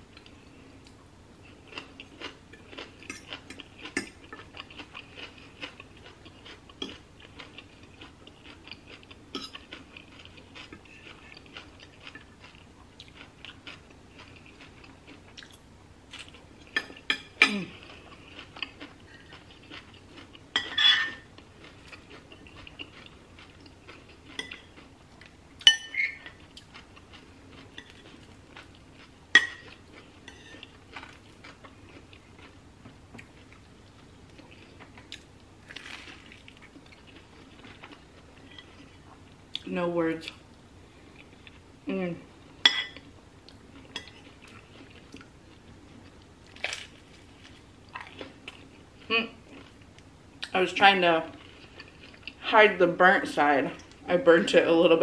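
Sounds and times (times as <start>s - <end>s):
chewing crunchy food: 0.1s - 39.7s, 42.9s - 50.6s, 51.2s - 52.5s
cutlery clinking on ceramic: 20.6s - 21.2s, 25.6s - 26.3s, 29.4s - 29.7s.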